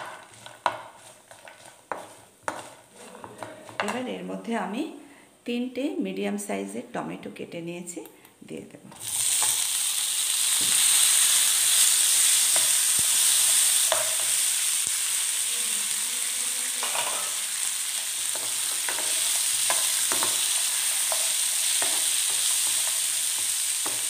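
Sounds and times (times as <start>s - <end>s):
food sizzling in oil: 0.0s - 4.1s, 8.9s - 24.0s
steel spoon scraping pan: 0.0s - 4.1s.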